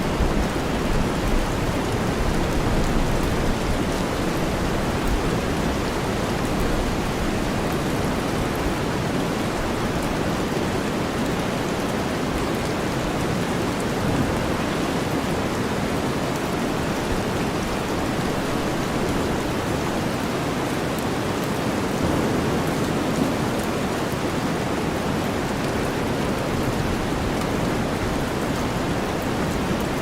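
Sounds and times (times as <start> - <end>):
rainstorm hiss: 0.0 - 30.0.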